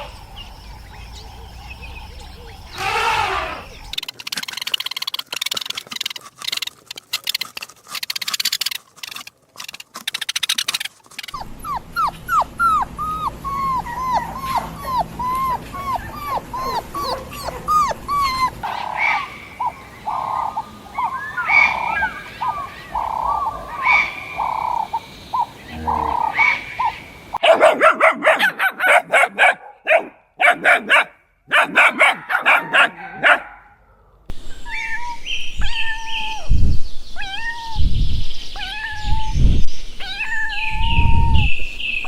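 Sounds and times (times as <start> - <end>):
crackling rattling noise: 3.8 - 13.5
dog whimpering and yipping: 11.2 - 18.7.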